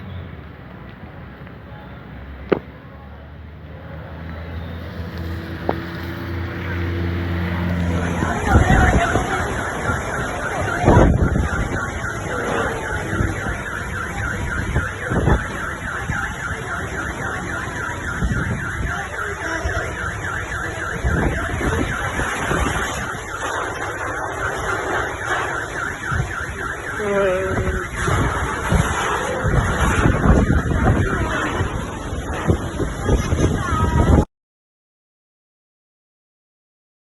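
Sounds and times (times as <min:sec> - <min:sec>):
low engine-like hum: 0:00.0 - 0:14.3
wind buffeting microphone: 0:04.8 - 0:34.3
car alarm: 0:06.6 - 0:32.5.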